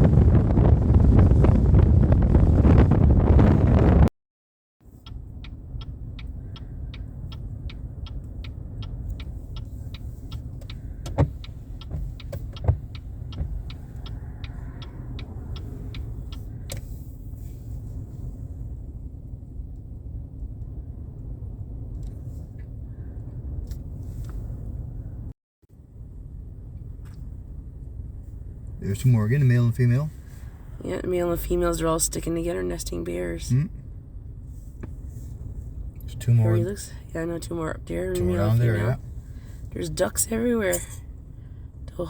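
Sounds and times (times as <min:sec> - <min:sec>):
wind on microphone: 0:00.0 - 0:04.1
car idling: 0:04.9 - 0:42.0
regular ticking: 0:05.0 - 0:16.9, 0:35.9 - 0:41.0.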